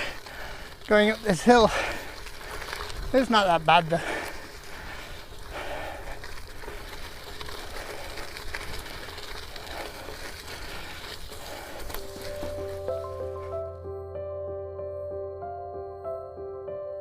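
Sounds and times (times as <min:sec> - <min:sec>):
bike tires crunching on gravel: 0:00.0 - 0:13.8
music: 0:12.0 - 0:17.0.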